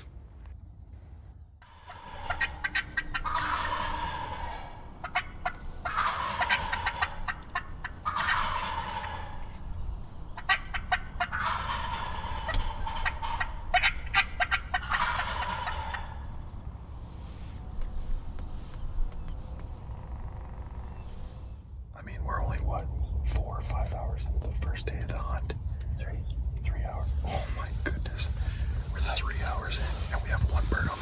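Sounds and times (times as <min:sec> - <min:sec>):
turkeys gobbling: 0:01.6 - 0:16.6.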